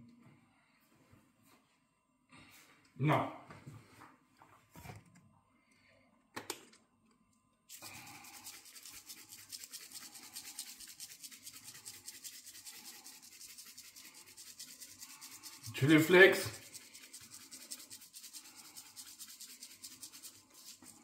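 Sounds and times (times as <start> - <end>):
hand spice grinder rasping: 7.7 - 21.0.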